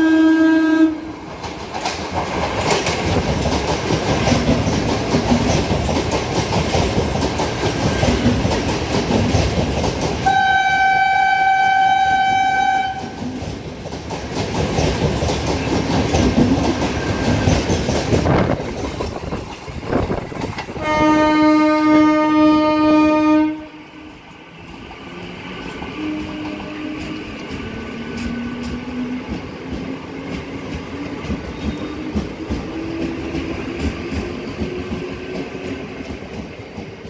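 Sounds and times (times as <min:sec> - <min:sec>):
train horn blast: 0:00.0 - 0:01.1, 0:10.2 - 0:13.2, 0:20.8 - 0:24.2, 0:25.8 - 0:27.3
train wheels clattering on rails: 0:01.1 - 0:37.0.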